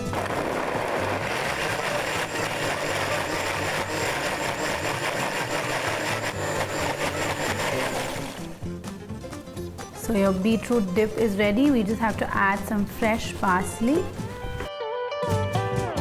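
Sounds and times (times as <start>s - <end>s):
blender running: 0.0s - 8.8s.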